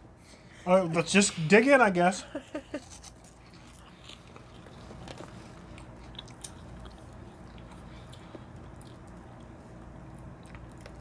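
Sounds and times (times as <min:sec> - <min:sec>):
low steady hum: 0:00.0 - 0:11.0
people chewing crunchy snacks: 0:02.6 - 0:11.0.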